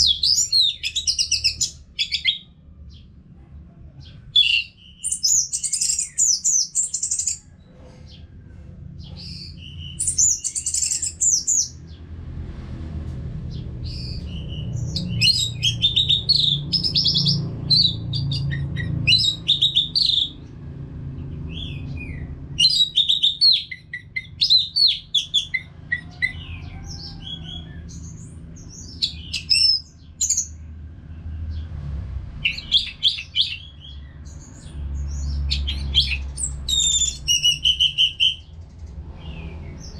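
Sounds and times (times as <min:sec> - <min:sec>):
faint low rumble: 0:01.0 - 0:05.1, 0:06.8 - 0:22.6.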